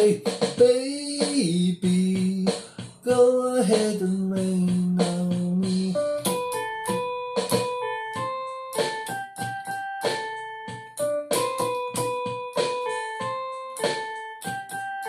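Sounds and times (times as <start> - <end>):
person singing: 0.0 - 6.5
piano notes and chords: 4.4 - 15.0.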